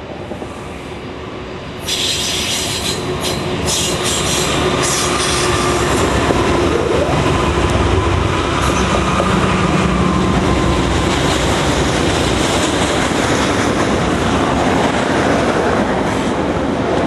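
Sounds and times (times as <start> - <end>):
diesel locomotives passing: 0.0 - 17.0
wheel flanges squealing on rails: 1.8 - 10.3.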